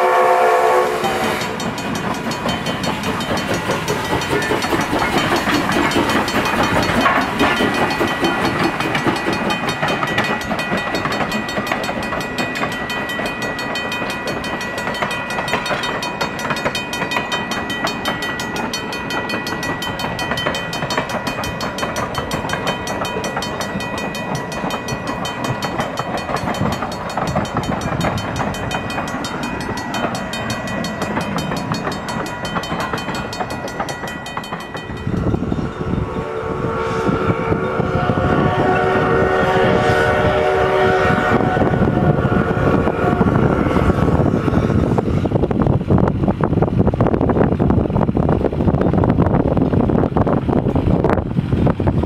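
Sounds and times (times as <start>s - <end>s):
train wheels clattering on rails: 0.0s - 36.0s
crossing bell ringing: 0.0s - 45.0s
steam locomotive chime whistle: 0.0s - 45.2s
deep train rumble: 0.0s - 52.0s.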